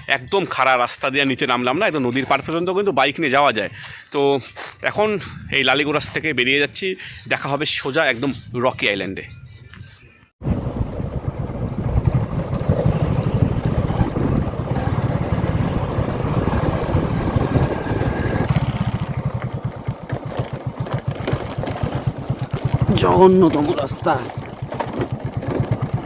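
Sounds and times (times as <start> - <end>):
motorcycle engine running: 10.4 - 26.0.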